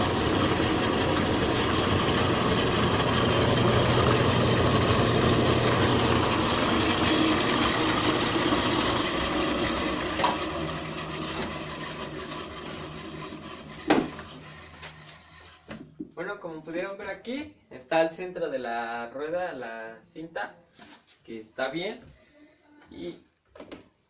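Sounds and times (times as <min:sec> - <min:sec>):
bandsaw running: 0:00.0 - 0:15.7.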